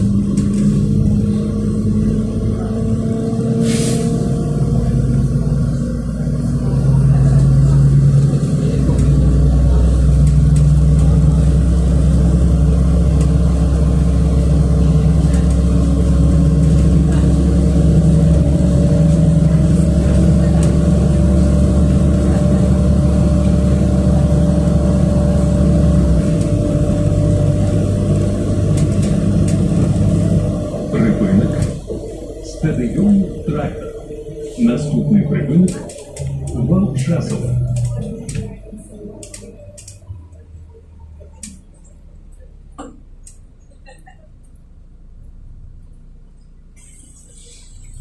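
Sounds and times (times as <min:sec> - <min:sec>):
bus engine droning: 0:00.0 - 0:48.0.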